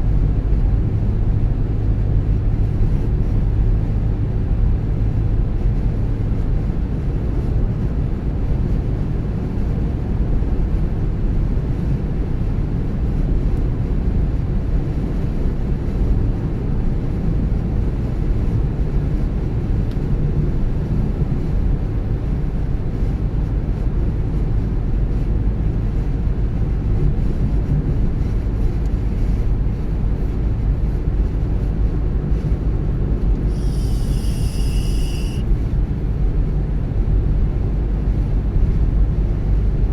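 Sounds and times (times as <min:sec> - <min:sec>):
car engine and tyre rumble: 0:00.0 - 0:39.9
brief high tone: 0:33.5 - 0:35.5.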